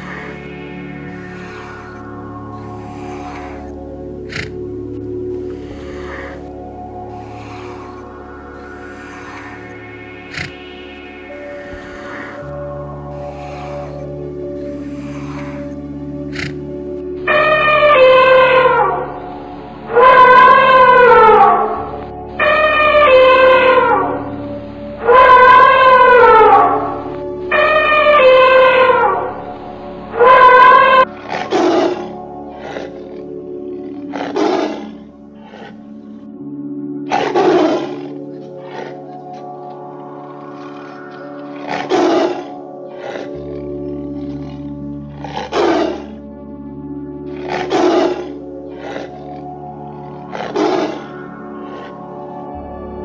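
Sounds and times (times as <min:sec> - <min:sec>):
tiger roaring: 0:00.0 - 0:19.1, 0:30.2 - 0:36.1, 0:37.1 - 0:46.2, 0:47.2 - 0:52.4
elephant trumpeting: 0:00.0 - 0:19.2, 0:19.9 - 0:24.2, 0:25.0 - 0:29.4, 0:30.1 - 0:36.1, 0:37.1 - 0:46.2, 0:47.3 - 0:52.4
music bed: 0:00.0 - 0:53.0.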